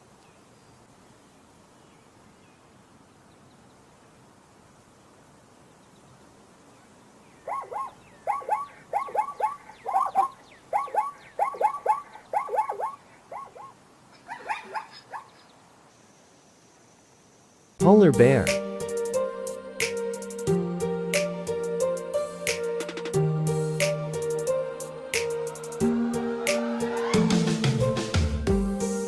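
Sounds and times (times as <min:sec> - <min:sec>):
zebra barking yelps: 0:07.4 - 0:15.5.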